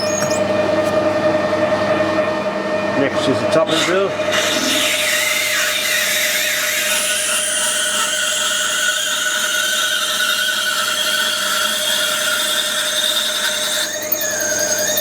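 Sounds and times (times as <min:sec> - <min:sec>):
lathe drill whining into metal: 0:00.0 - 0:00.5, 0:03.7 - 0:15.0.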